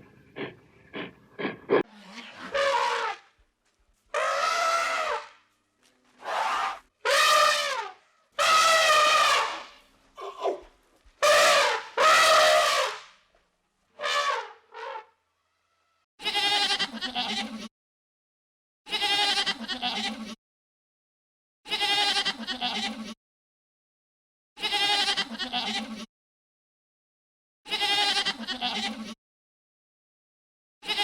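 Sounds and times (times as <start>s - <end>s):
sheep or goats bleating: 16.2s - 17.7s, 18.9s - 20.4s, 21.7s - 23.2s, 24.6s - 26.1s, 27.7s - 29.2s.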